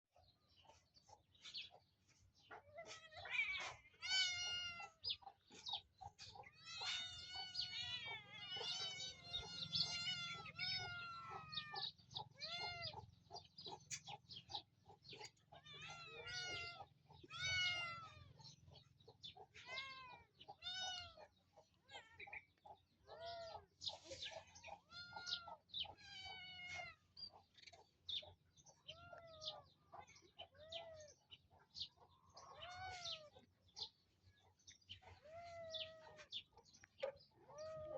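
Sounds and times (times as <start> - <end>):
cat meowing: 2.7 - 5.0, 6.5 - 13.0, 15.5 - 18.4, 19.6 - 21.3, 24.8 - 27.0, 32.4 - 33.4.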